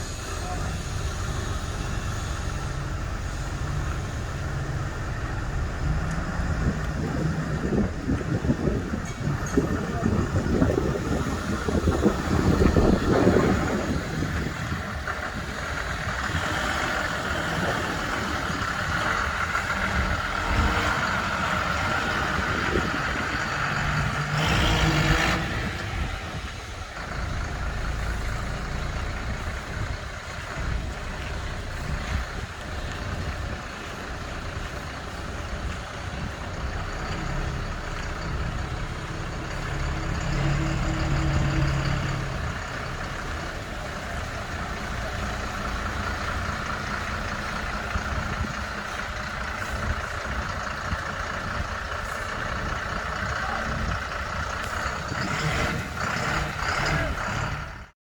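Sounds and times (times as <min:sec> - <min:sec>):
heavy vehicle engine rumbling: 0:00.0 - 0:58.0.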